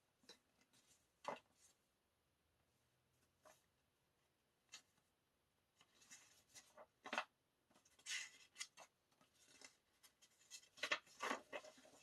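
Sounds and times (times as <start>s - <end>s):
paper and card rustling: 5.8s - 12.0s.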